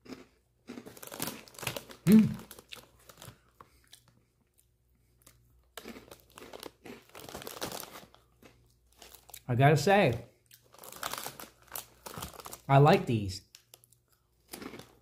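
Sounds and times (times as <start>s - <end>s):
snacks crunching: 0.0s - 9.5s, 10.1s - 12.7s, 13.5s - 15.0s
foil chip bag crinkling: 0.7s - 3.8s, 5.8s - 9.4s, 10.6s - 15.0s
short voice hum: 2.1s - 2.4s.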